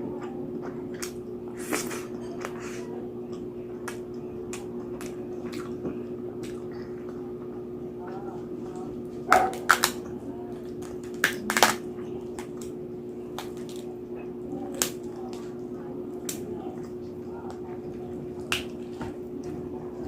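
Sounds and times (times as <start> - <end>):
steady low hum: 0.0 - 20.0
wet chewing: 0.2 - 20.0
crispy skin crunching: 0.9 - 7.3, 9.0 - 14.0.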